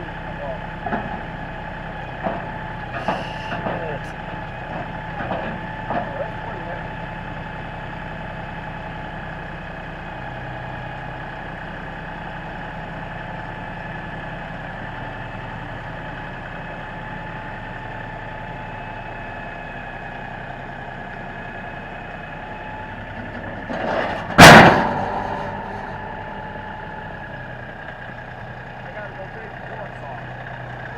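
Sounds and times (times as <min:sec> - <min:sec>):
tractor engine idling: 0:00.0 - 0:30.9
loud bang: 0:23.8 - 0:27.6.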